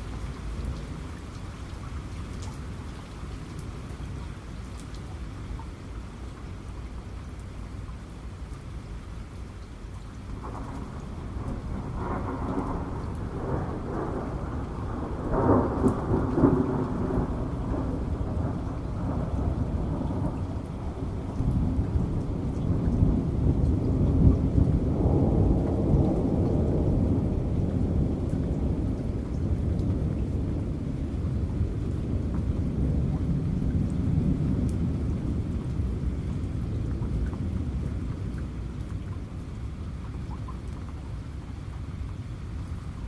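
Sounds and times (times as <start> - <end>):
steady rain: 0.0 - 43.0
thunder rolling: 10.4 - 38.3.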